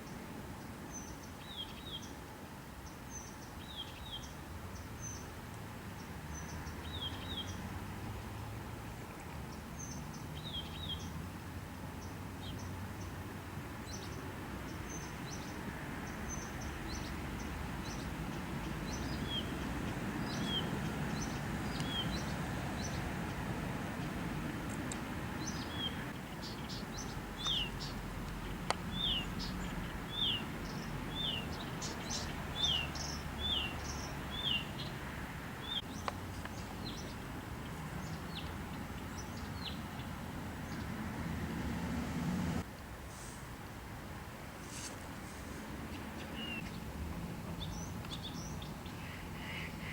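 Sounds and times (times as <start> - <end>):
bird chirping: 0.9 - 2.2, 2.8 - 5.3, 6.0 - 7.6, 13.8 - 23.1, 25.4 - 35.0, 45.9 - 46.9, 47.6 - 49.9.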